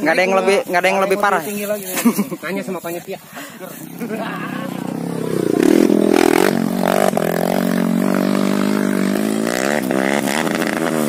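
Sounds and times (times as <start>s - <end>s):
dirt bike engine running: 3.5s - 11.0s.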